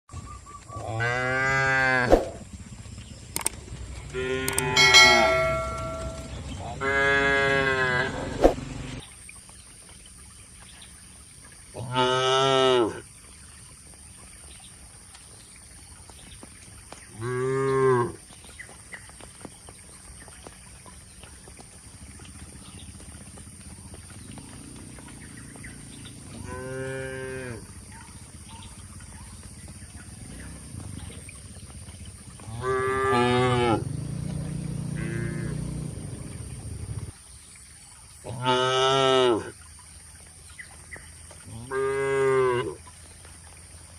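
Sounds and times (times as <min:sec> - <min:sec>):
cattle mooing: 0:04.2 - 0:08.4, 0:32.4 - 0:33.9, 0:34.5 - 0:35.9.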